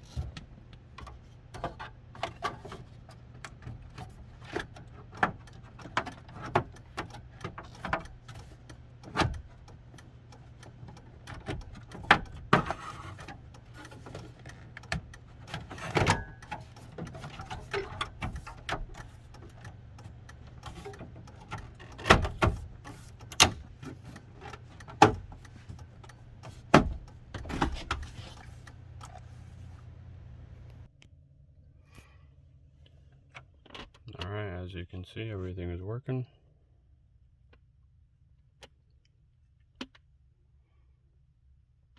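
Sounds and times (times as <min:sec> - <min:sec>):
plastic trim panels clicking and snapping: 0:00.9 - 0:29.2.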